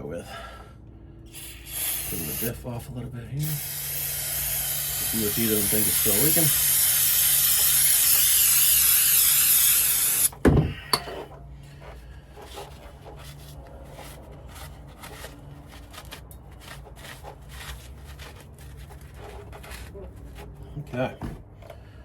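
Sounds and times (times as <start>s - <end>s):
hissing pressurized spray: 1.3s - 2.5s, 3.4s - 10.3s
rustling: 11.6s - 20.8s.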